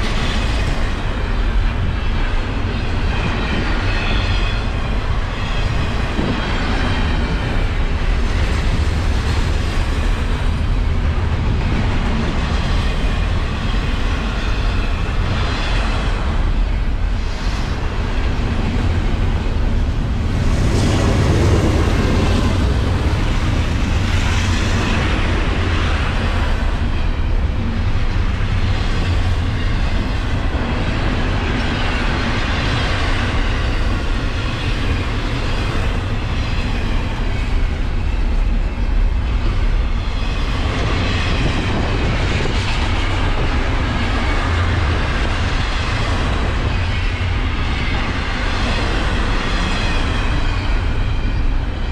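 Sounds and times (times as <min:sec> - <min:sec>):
freight train wheels rumbling: 0:00.0 - 0:51.9.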